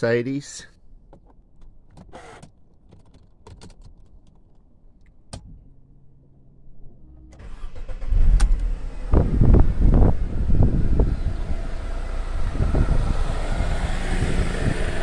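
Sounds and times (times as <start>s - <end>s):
car engine cranking and starting: 7.2s - 15.0s.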